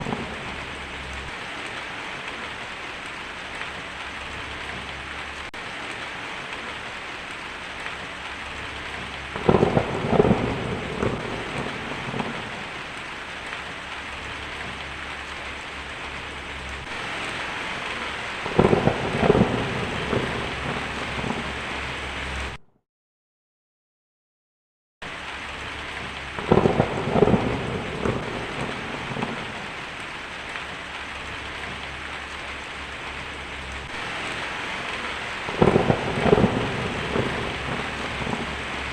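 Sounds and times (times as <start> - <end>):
rolling thunder: 0.0 - 1.5, 8.6 - 13.0, 13.6 - 22.6, 25.9 - 30.0, 31.5 - 38.9
steady rain falling: 0.0 - 22.6, 25.0 - 38.9.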